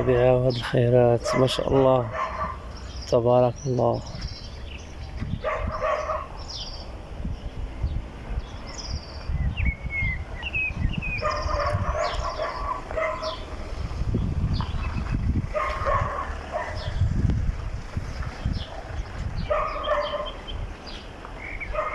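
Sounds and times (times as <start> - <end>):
dog barking: 0.0 - 0.4, 1.2 - 2.6, 5.4 - 6.4, 11.2 - 13.4, 15.5 - 17.0, 19.4 - 20.4, 21.7 - 21.9
small birds chirping and whistling: 1.4 - 17.2, 18.1 - 21.9.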